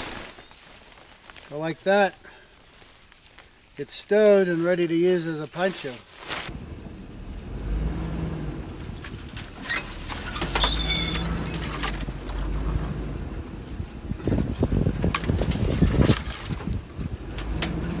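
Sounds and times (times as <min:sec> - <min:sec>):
engine and road rumble: 0:05.5 - 0:18.0
knocks and rattles: 0:08.7 - 0:18.0
brief squeak: 0:09.6 - 0:11.7.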